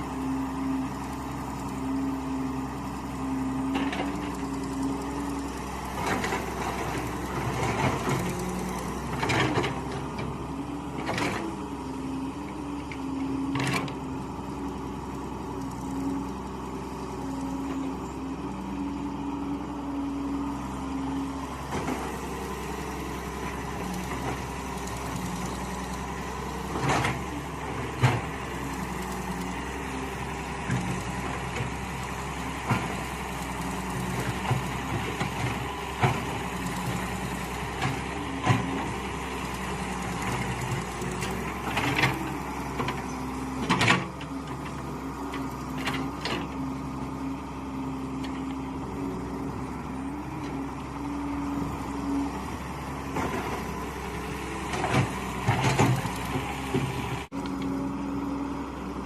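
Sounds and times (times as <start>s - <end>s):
excavator engine running: 0.0s - 59.0s
knocks and clanks digging: 6.0s - 10.3s, 33.8s - 46.6s, 53.1s - 57.3s.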